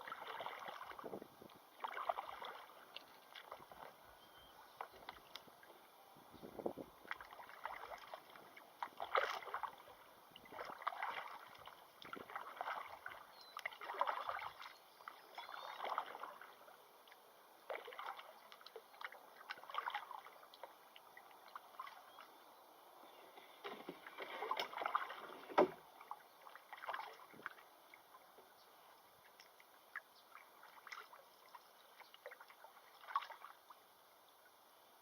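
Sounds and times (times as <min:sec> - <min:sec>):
kayak paddle splashing: 0:00.0 - 0:05.8, 0:07.0 - 0:22.3, 0:23.3 - 0:28.3, 0:29.2 - 0:33.8
paddle knocks: 0:23.6 - 0:25.8.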